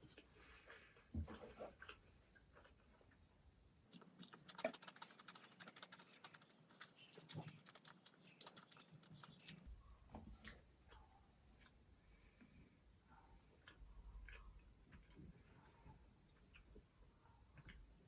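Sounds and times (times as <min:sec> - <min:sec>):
person chewing: 0:01.7 - 0:03.3, 0:03.9 - 0:09.7, 0:13.6 - 0:16.8.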